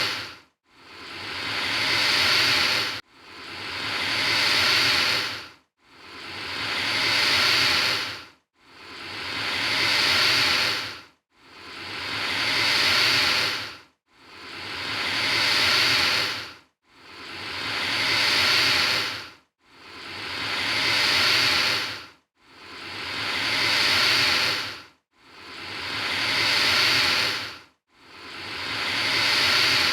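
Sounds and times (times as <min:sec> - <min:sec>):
alligator hissing: 0:00.0 - 0:00.3, 0:00.9 - 0:03.0, 0:03.6 - 0:05.4, 0:06.7 - 0:08.2, 0:08.8 - 0:10.9, 0:11.7 - 0:13.7, 0:14.4 - 0:16.4, 0:17.1 - 0:19.2, 0:19.9 - 0:22.0, 0:22.7 - 0:24.8, 0:25.4 - 0:27.5, 0:28.2 - 0:29.9.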